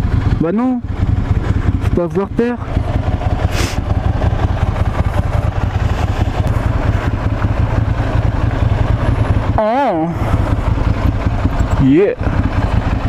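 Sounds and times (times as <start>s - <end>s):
motorcycle engine rumbling: 0.0s - 13.0s
short hiss: 3.5s - 3.8s.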